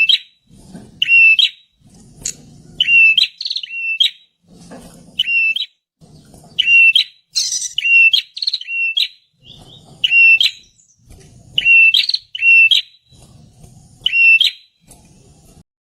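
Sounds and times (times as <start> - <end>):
bird singing whistled phrases: 0.0 - 0.3, 1.0 - 1.6, 2.8 - 4.2, 5.2 - 5.7, 6.6 - 11.0, 11.6 - 13.0, 14.0 - 14.7.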